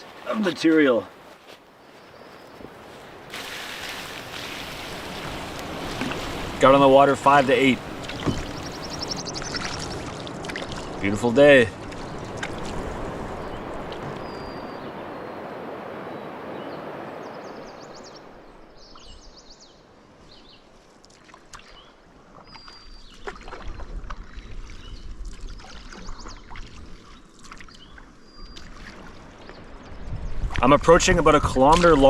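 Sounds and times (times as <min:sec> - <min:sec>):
rush of moving water: 0:02.7 - 0:19.1, 0:20.9 - 0:32.0
paddle splashes and knocks: 0:03.3 - 0:14.7, 0:21.0 - 0:29.7, 0:31.5 - 0:32.0.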